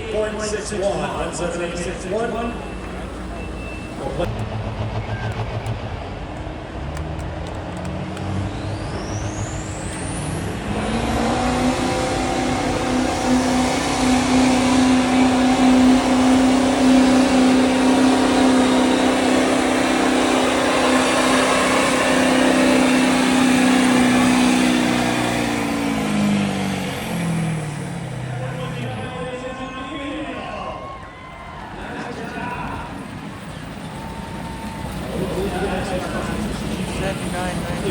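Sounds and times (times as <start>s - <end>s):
diesel truck engine revving: 0.0s - 29.8s, 31.7s - 37.9s
turbo whistle: 2.6s - 6.1s.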